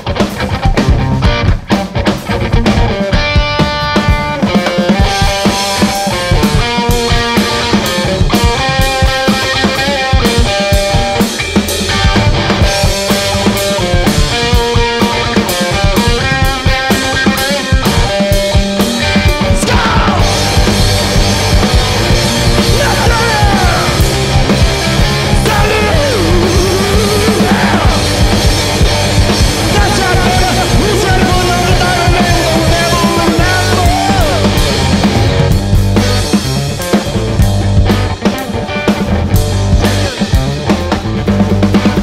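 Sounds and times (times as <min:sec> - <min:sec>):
drum kit beat: 0:00.0 - 0:42.0
electric guitar lead bending: 0:00.0 - 0:42.0
rock band playing: 0:00.0 - 0:42.0.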